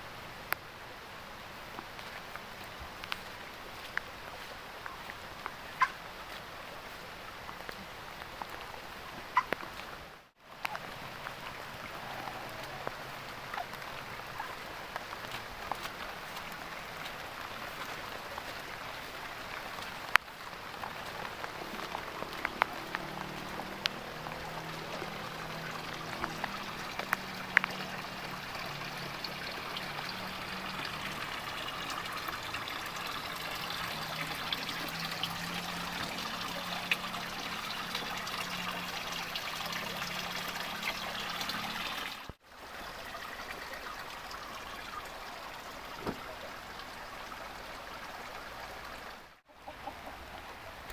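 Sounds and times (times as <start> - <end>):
water trickling and pouring: 10.5 - 49.5
heavy rain: 10.9 - 37.7
sharp drips and taps: 12.6 - 42.4.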